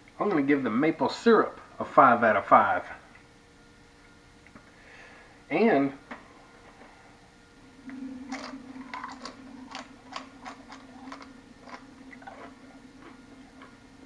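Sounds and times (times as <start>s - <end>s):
steady low hum: 0.0s - 14.0s
person chewing food: 8.3s - 13.8s.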